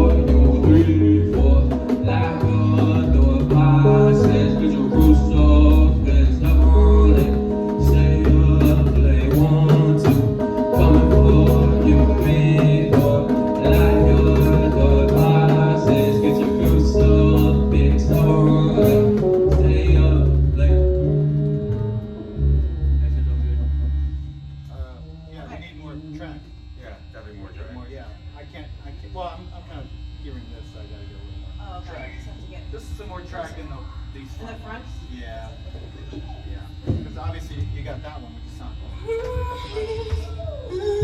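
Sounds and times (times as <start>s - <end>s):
heavy pulsing bass line: 0.0s - 27.2s
sustained pitched notes: 0.0s - 40.0s.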